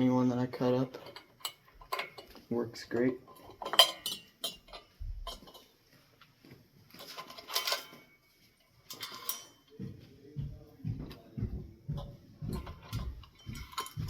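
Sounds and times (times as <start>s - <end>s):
metal parts clinking and rattling: 0.5s - 5.8s, 6.9s - 8.2s, 8.8s - 9.8s, 12.0s - 14.0s.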